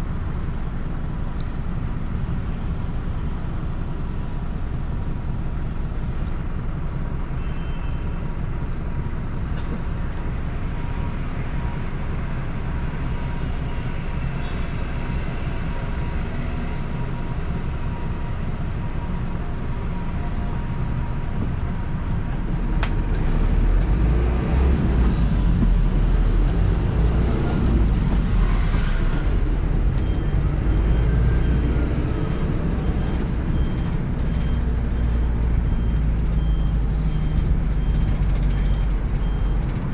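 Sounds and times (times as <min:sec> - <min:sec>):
bus engine rumbling: 0:00.0 - 0:39.9
faint repeated beep: 0:32.8 - 0:39.6.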